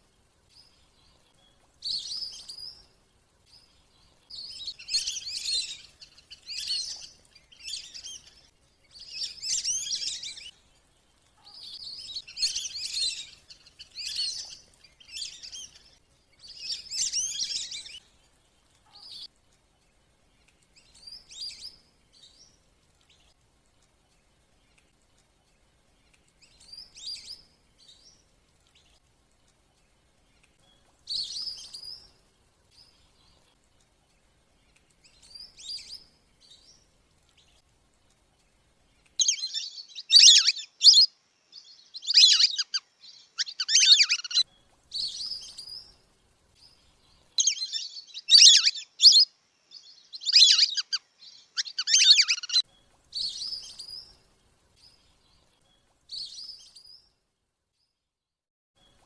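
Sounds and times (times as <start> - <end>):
whistling duck calls: 39.2 - 41.1, 42.0 - 42.8, 43.4 - 44.4, 50.2 - 51.0, 51.6 - 52.6.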